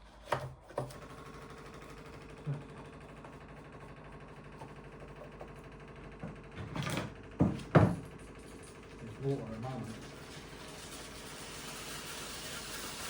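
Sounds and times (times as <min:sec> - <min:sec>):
steam cleaner pump buzzing: 0:09.5 - 0:13.0.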